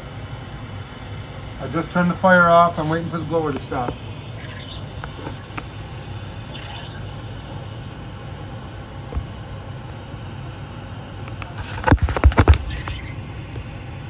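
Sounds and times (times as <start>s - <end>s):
furnace blower fan running: 0.0s - 14.0s.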